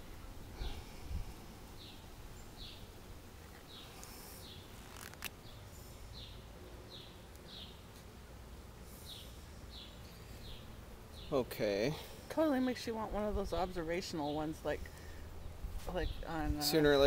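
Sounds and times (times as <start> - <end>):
faint outdoor background noise: 0.0 - 17.0
bird chirping: 1.8 - 2.9, 3.5 - 7.9, 9.0 - 11.5.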